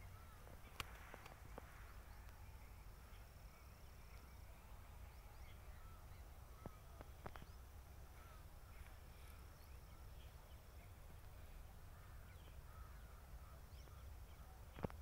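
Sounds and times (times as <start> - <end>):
distant bird calls: 0.0 - 15.0
low wind rumble: 0.0 - 15.0.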